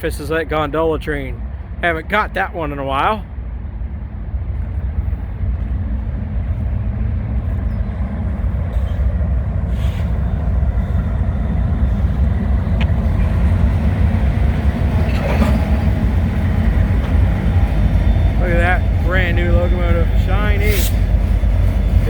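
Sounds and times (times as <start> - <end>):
diesel locomotive engine rumble: 0.0 - 22.0.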